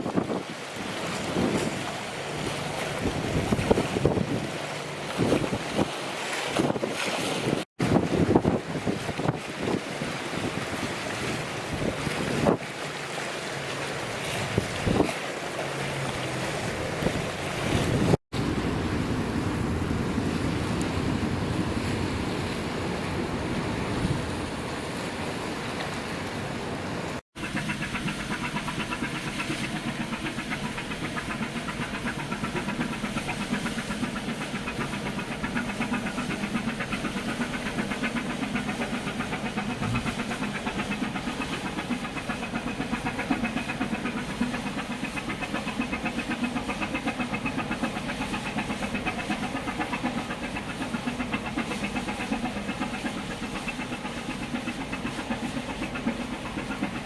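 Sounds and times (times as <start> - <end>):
diesel engine pulsing: 27.4 - 57.0.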